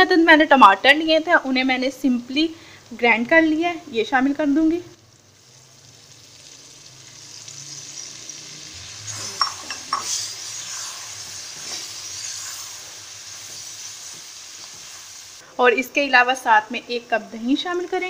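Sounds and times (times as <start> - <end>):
sizzling in hot oil: 0.7 - 18.0
spoon knocking against pan: 9.4 - 10.2.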